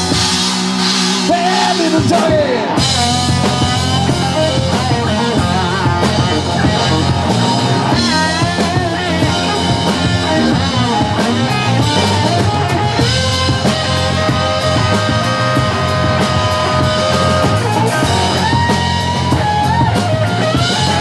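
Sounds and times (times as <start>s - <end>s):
bass guitar: 0.0s - 21.0s
drum kit: 0.0s - 21.0s
electric guitar bending notes: 0.0s - 21.0s.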